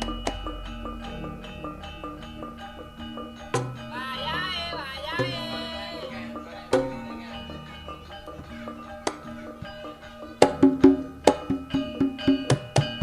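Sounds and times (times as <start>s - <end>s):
high wavering voice singing: 0.7s - 10.4s.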